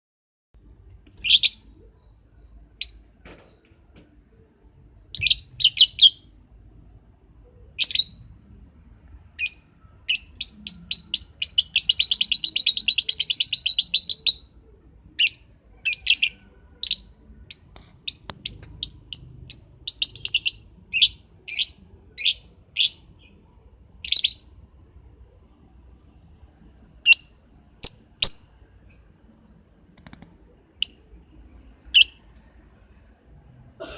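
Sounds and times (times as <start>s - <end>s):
lovebird chirping: 1.1s - 3.2s, 5.1s - 6.4s, 7.4s - 8.4s, 9.3s - 24.7s, 27.0s - 33.0s.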